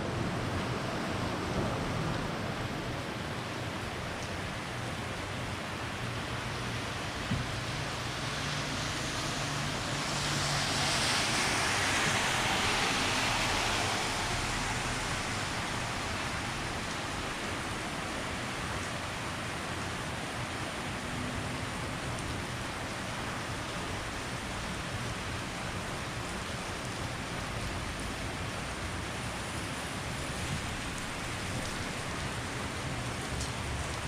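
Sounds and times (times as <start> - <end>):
heavy rain hissing: 7.6 - 34.0.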